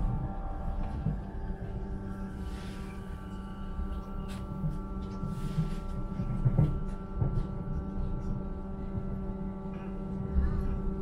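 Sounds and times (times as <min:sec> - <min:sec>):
steady multi-tone train hum: 0:00.0 - 0:11.0.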